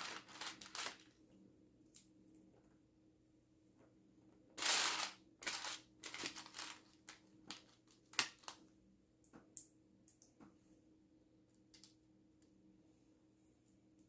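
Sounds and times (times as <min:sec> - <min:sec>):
plastic pieces rummaging: 0:00.0 - 0:01.1, 0:04.6 - 0:08.5.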